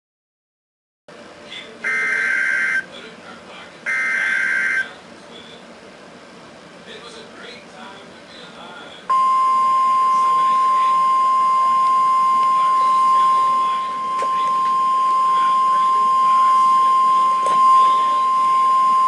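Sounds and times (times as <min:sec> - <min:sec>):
high steady alarm tone: 0:01.8 - 0:02.9, 0:03.9 - 0:05.0, 0:09.1 - 0:19.0.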